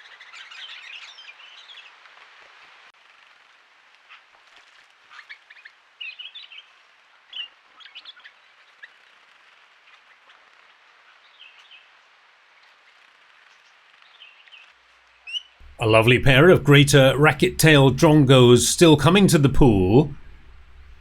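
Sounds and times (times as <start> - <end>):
faint background hiss: 8.6 - 21.0.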